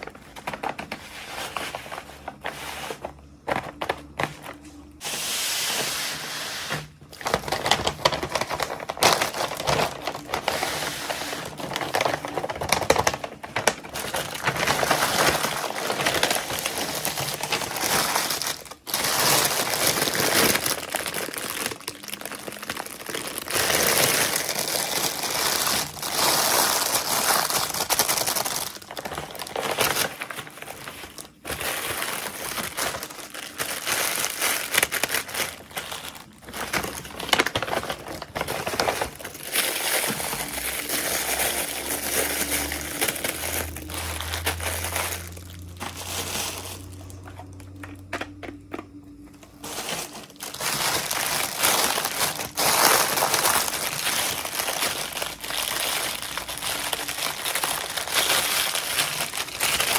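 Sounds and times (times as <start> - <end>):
packaging crumpling: 0.0 - 59.9.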